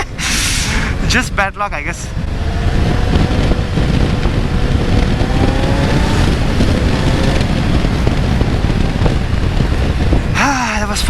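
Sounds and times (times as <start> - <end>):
wind rush on microphone: 0.0 - 11.0
motorcycle engine accelerating: 2.1 - 10.4.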